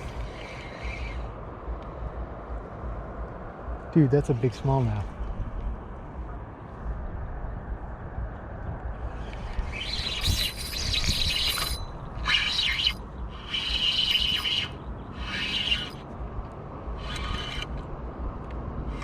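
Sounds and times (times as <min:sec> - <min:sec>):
steady low rumble: 0:00.0 - 0:19.0
bird singing raspy phrases: 0:09.0 - 0:16.0.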